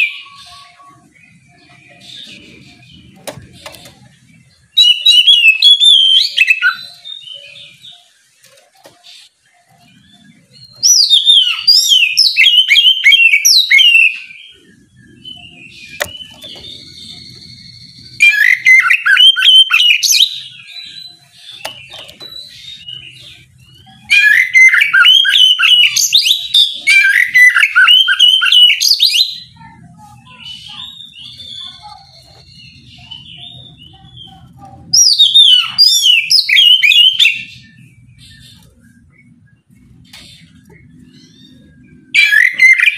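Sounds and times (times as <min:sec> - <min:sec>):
bird singing whistled phrases: 0:04.8 - 0:08.1, 0:10.6 - 0:14.6, 0:15.2 - 0:23.2, 0:23.8 - 0:29.6, 0:30.4 - 0:37.6, 0:41.3 - 0:42.9.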